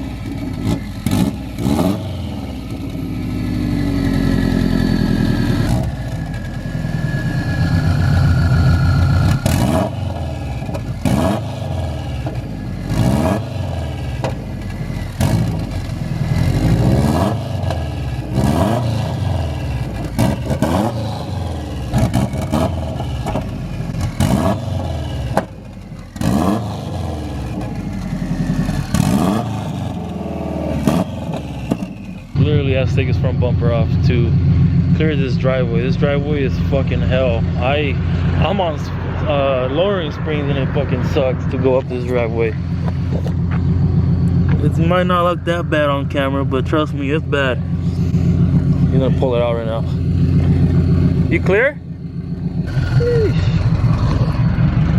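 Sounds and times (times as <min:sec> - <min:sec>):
car engine revving with cracks: 0:00.0 - 0:54.9.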